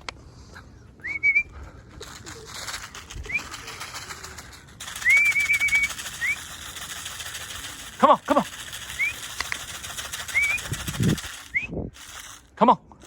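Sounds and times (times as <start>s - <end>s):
pigeons cooing: 0.3s - 7.8s
rising whistles: 1.0s - 1.6s, 3.2s - 3.7s, 4.8s - 6.6s, 8.8s - 9.5s, 10.1s - 12.0s
warbling whistle: 4.8s - 7.0s, 8.8s - 12.0s.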